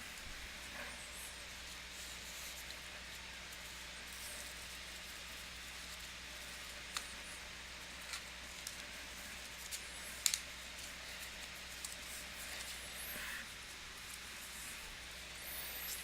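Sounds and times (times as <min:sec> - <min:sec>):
clicks and snaps of cards: 0:09.7 - 0:10.5
glossy cards squeaking: 0:14.4 - 0:16.0.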